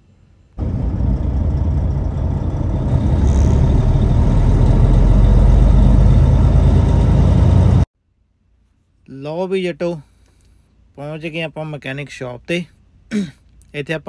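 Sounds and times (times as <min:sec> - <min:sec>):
heavy truck engine droning: 0:00.6 - 0:07.9.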